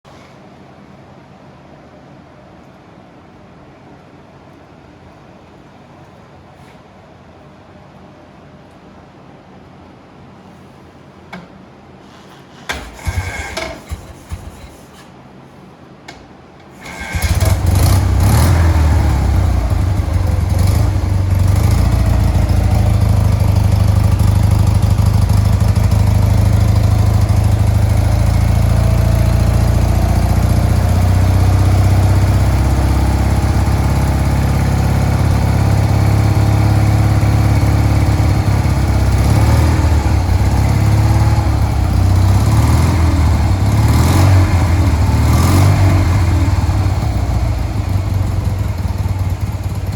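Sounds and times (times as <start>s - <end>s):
motorcycle engine starting: 12.4s - 15.0s, 16.8s - 49.9s.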